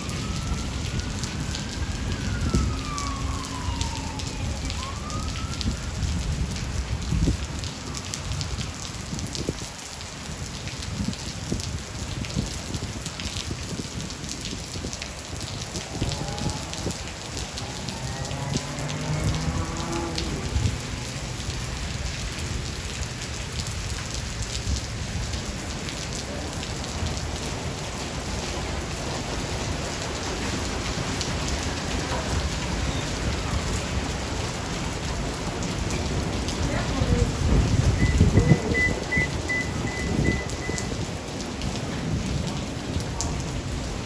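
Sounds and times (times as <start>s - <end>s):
rolling thunder: 0.0s - 7.6s, 34.9s - 44.0s
heavy rain pattering: 0.0s - 44.0s.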